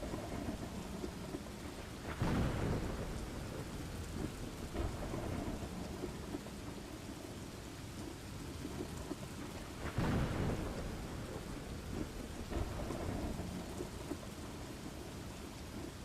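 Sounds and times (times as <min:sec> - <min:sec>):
low rumbling thunder: 0:00.0 - 0:07.4, 0:08.5 - 0:16.0
steady rain: 0:00.0 - 0:16.0.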